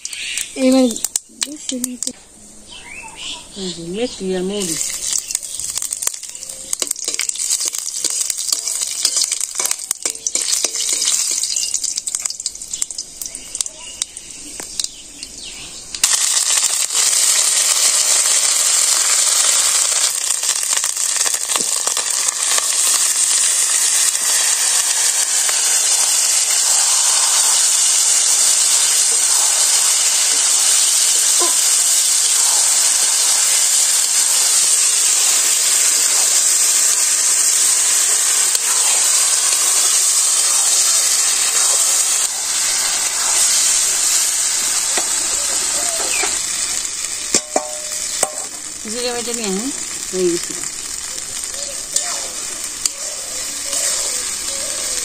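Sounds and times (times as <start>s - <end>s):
vegetables sizzling in hot oil: 0.0s - 55.0s
metal spatula scraping: 6.8s - 11.7s.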